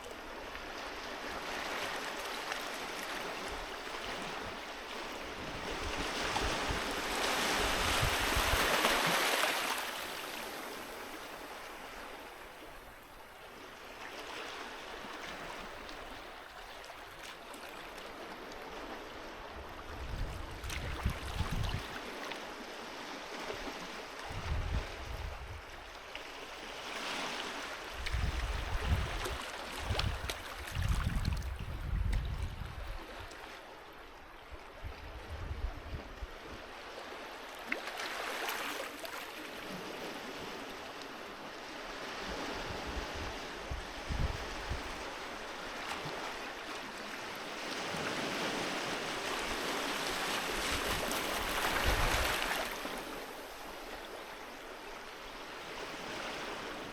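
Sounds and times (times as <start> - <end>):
sea waves washing onto beach: 0.0 - 13.0, 36.6 - 56.9.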